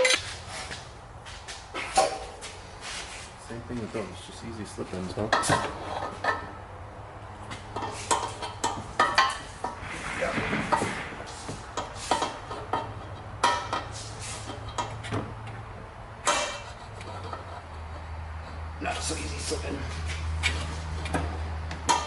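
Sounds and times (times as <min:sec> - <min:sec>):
metal exhaust clinking: 0:11.3 - 0:15.6, 0:16.2 - 0:19.6
scraping rasp: 0:16.2 - 0:18.5.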